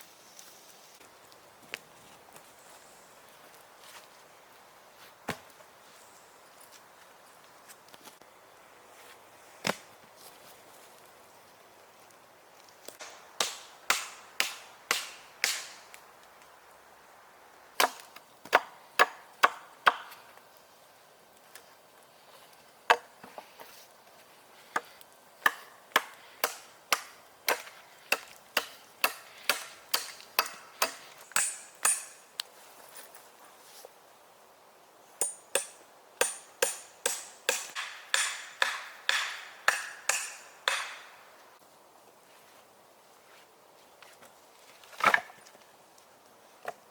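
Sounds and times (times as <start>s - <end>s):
hand tool striking wood: 13.4s - 15.8s, 17.8s - 20.2s, 24.7s - 32.2s, 35.2s - 41.2s.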